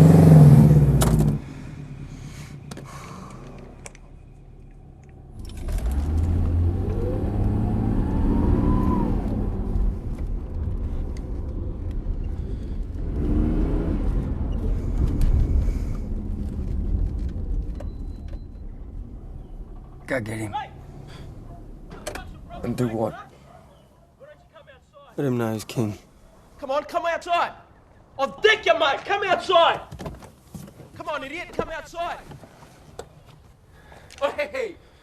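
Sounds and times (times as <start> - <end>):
car engine accelerating: 0.0 - 2.6, 3.3 - 23.1
car engine low rumble: 0.0 - 23.6
rising and falling whine: 3.8 - 20.1.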